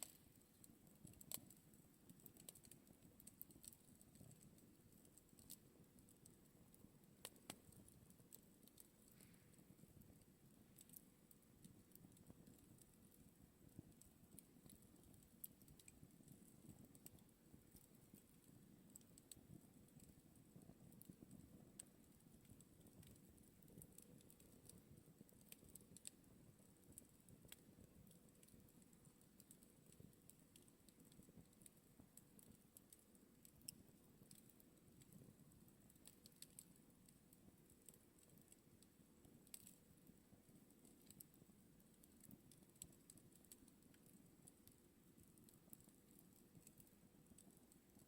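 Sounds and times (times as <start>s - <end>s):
low rumble of flames: 0.0s - 32.5s
campfire crackling and popping: 0.0s - 48.0s.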